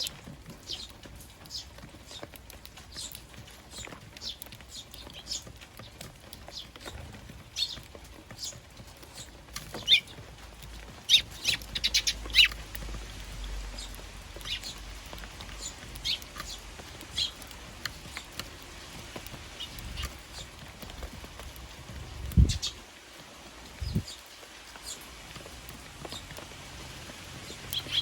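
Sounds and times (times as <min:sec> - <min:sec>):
sparrows chirping: 0:00.0 - 0:28.0.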